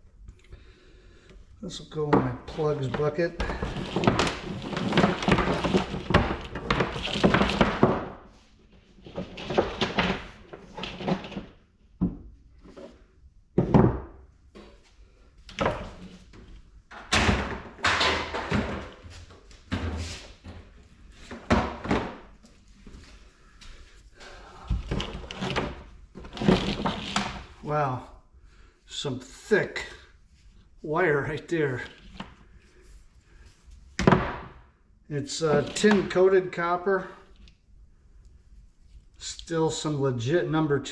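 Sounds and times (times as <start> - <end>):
scrap parts clunking into buckets: 1.7 - 14.0, 15.5 - 27.8, 35.2 - 37.3.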